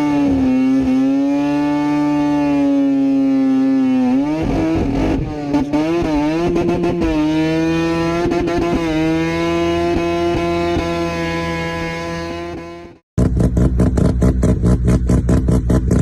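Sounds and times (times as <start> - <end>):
rotary engine revving: 0.0 - 16.0
engine crackling and popping: 13.2 - 16.0.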